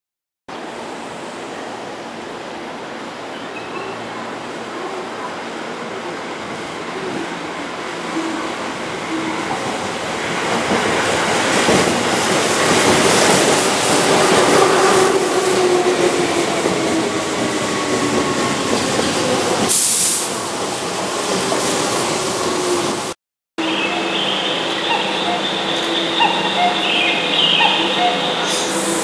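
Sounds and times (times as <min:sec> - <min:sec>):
train wheels on rail: 0:05.8 - 0:23.2, 0:23.9 - 0:29.0
brief high hiss: 0:19.7 - 0:20.4, 0:28.4 - 0:29.0.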